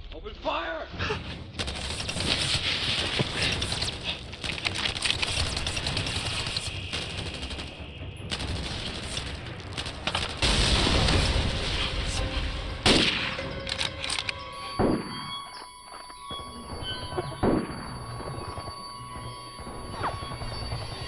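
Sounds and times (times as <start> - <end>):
rifle and machine-gun fire: 1.6 - 14.1
sharp gunshot report: 10.4 - 13.7.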